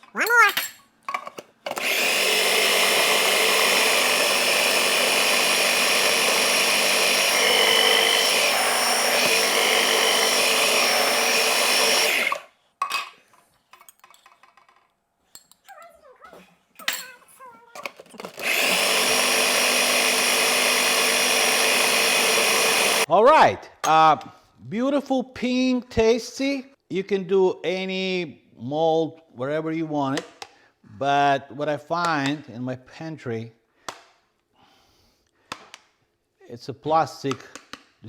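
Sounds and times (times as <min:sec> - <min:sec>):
electric blender running: 0:01.7 - 0:12.5, 0:17.9 - 0:23.1.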